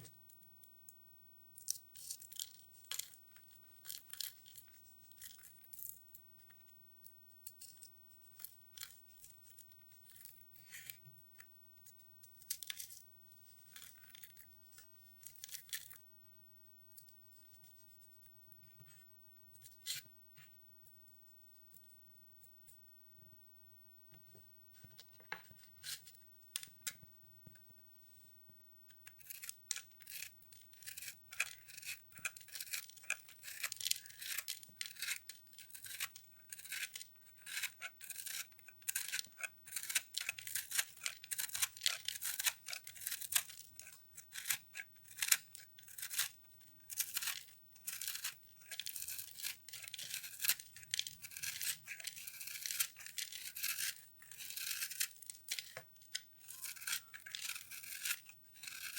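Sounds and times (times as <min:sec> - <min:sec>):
brittle soap foam crackling: 0:01.5 - 0:16.1, 0:28.9 - 0:58.9.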